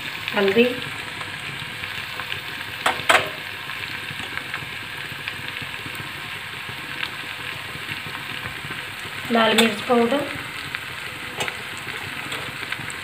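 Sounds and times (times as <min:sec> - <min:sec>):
onions and tomatoes frying in oil: 0:00.0 - 0:13.0.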